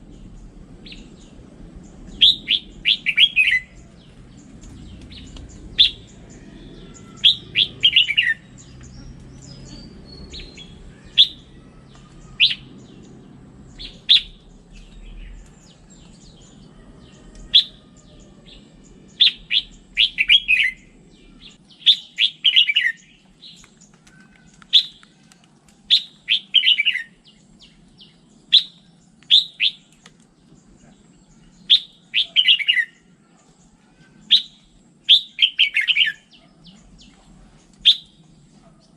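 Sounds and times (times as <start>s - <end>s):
bulbul singing: 0.0s - 38.9s
faint background noise: 0.0s - 38.9s.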